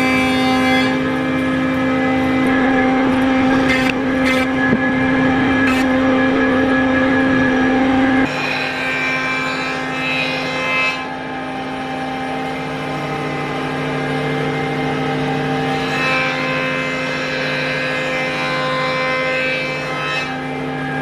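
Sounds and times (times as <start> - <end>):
electric motor humming: 0.0 - 8.4
machine motor whine: 0.0 - 17.0.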